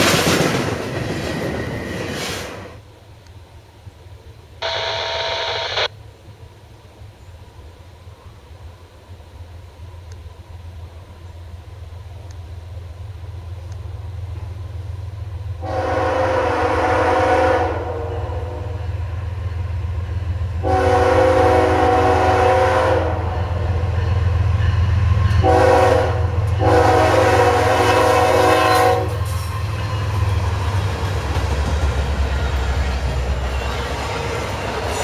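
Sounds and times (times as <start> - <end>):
locomotive air horn: 15.6 - 18.8, 20.6 - 23.6, 25.4 - 29.5.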